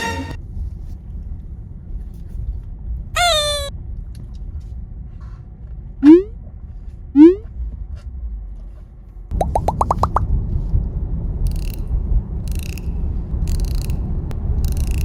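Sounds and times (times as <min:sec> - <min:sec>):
low steady rumble: 0:00.3 - 0:15.0
high squeak falling in pitch: 0:03.2 - 0:03.7, 0:06.0 - 0:06.3, 0:07.2 - 0:07.4
rising cartoon sound effects: 0:06.0 - 0:06.3, 0:07.2 - 0:07.4, 0:09.4 - 0:10.2.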